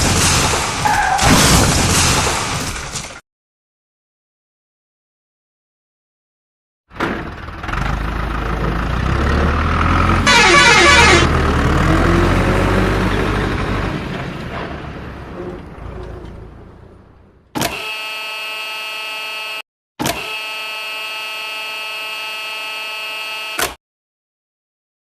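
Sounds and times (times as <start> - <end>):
heavy vehicle passing by: 7.3 - 17.5
vehicle horn blast: 10.2 - 11.3, 20.2 - 23.7.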